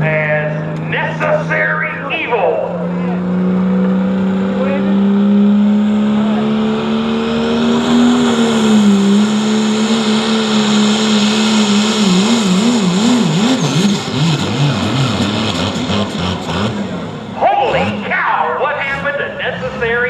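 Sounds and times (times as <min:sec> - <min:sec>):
diesel engine revving at full throttle: 0:00.0 - 0:20.0.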